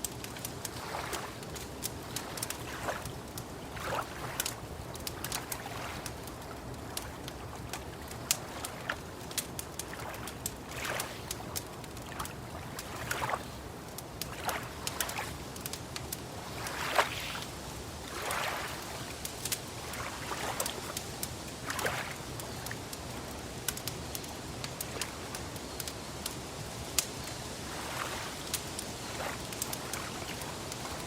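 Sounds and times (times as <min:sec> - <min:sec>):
small waves lapping: 0:00.0 - 0:31.0
wood fire crackling: 0:00.0 - 0:31.0.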